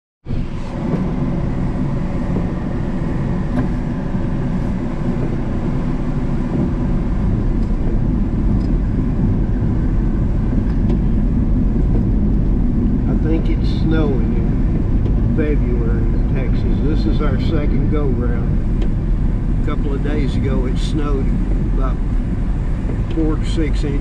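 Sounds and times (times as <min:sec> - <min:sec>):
pickup truck engine rumble: 0:00.2 - 0:24.0.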